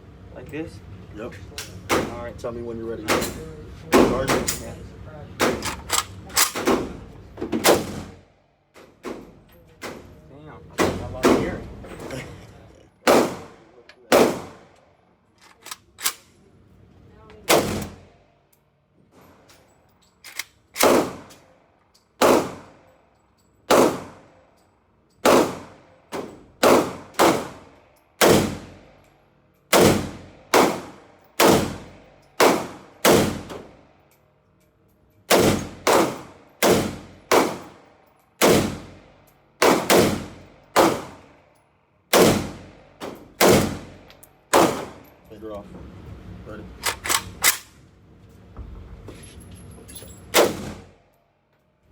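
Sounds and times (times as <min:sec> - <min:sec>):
gunshots with echo: 0:13.1 - 0:14.6.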